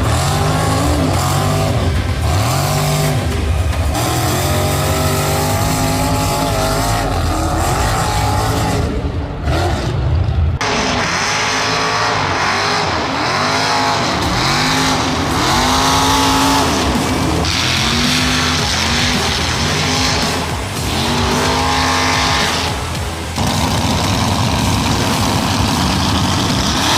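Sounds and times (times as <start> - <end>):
truck engine revving: 0.0 - 26.9.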